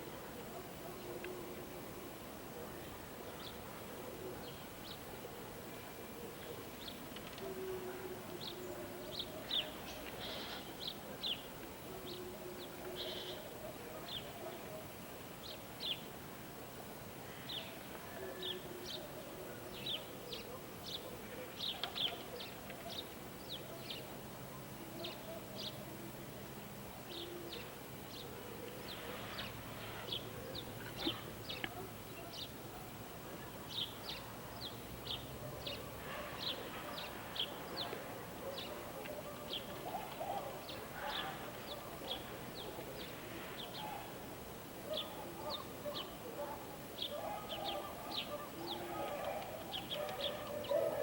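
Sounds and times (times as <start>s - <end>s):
small birds chirping: 19.7s - 24.2s, 27.1s - 51.0s
pigeons cooing: 47.1s - 51.0s.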